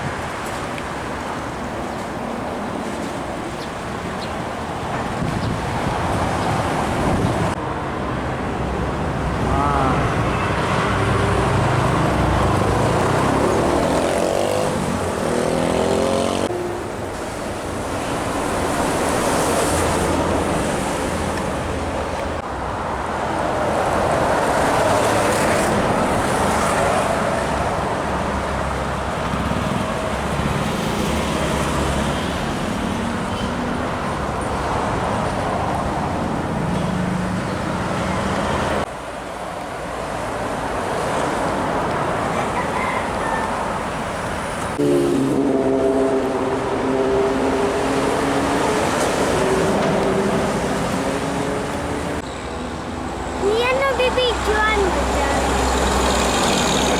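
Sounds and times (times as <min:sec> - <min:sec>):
road traffic passing: 0:00.0 - 0:56.9
passing engine dropping in pitch: 0:44.8 - 0:52.3.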